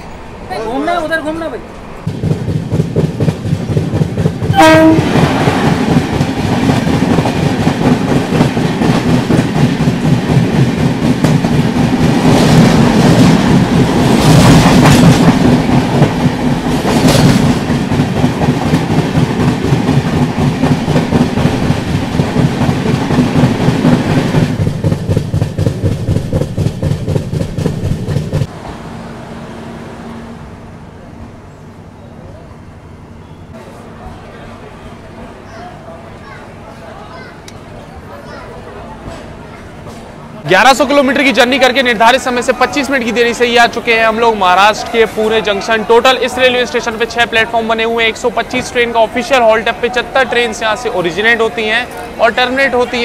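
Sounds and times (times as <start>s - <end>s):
train wheel clatter and rumble: 2.0s - 28.6s, 37.2s - 45.4s
train horn blast: 4.5s - 5.2s.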